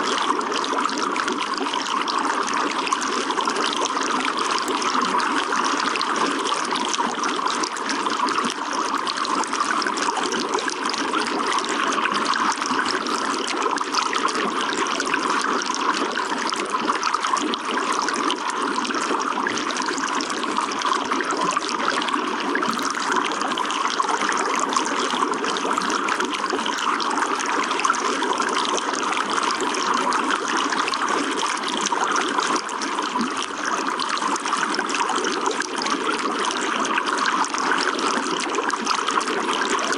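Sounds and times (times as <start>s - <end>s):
running water trickling: 0.1s - 39.9s.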